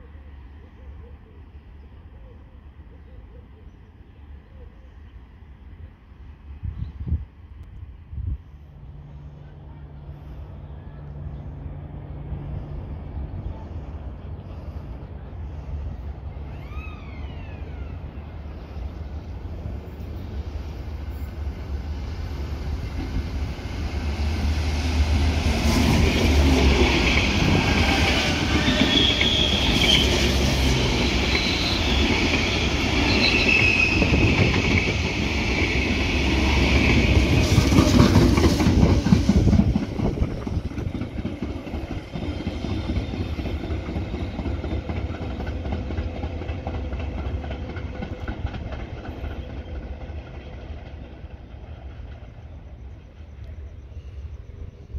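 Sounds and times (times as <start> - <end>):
train wheel squeal: 16.3 - 19.0, 25.6 - 54.9
train wheels clicking on rails: 19.7 - 54.1.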